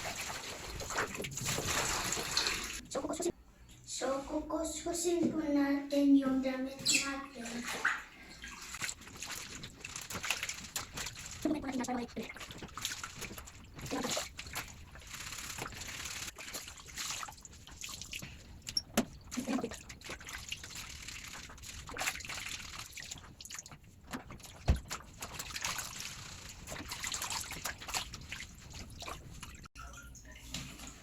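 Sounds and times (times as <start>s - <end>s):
clothes scrubbed in water: 0.0s - 2.8s, 7.0s - 29.7s
water trickling and dripping: 15.6s - 31.0s.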